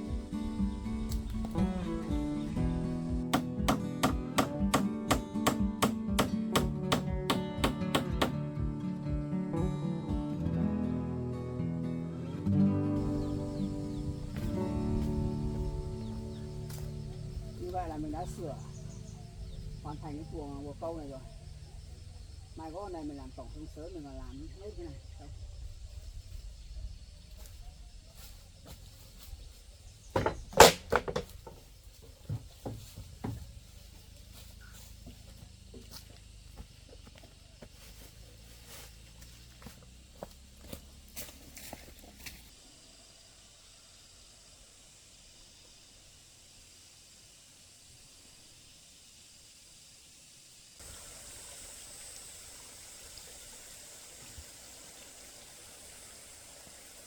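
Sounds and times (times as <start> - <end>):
sharp knocks: 3.2 - 8.4, 30.2 - 31.6
faint outdoor rushing noise: 12.2 - 57.0.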